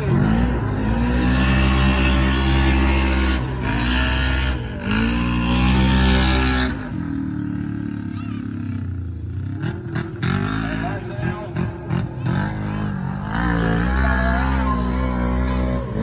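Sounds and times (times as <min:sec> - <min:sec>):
race truck engine revving: 0:00.0 - 0:08.2, 0:09.5 - 0:16.0.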